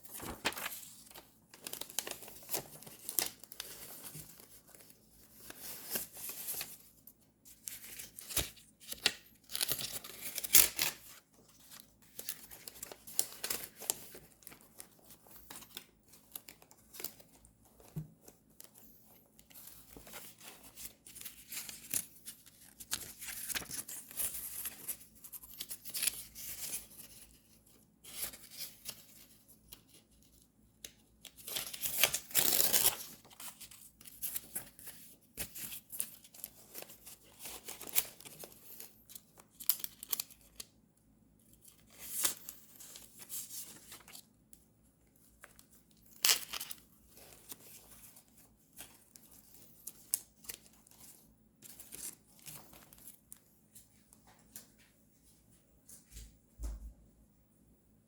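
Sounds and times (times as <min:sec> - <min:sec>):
paper crinkling and tearing: 0:00.0 - 0:06.7, 0:07.7 - 0:17.3, 0:19.6 - 0:27.4, 0:31.3 - 0:38.8.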